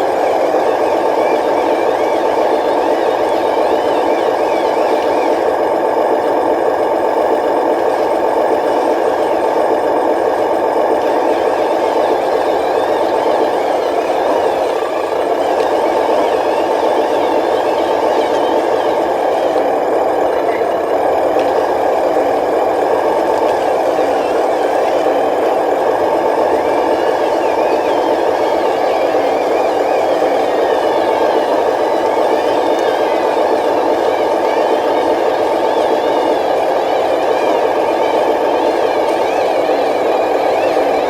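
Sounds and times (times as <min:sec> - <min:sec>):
toy trucks engine-like drone: 0:00.0 - 0:41.0.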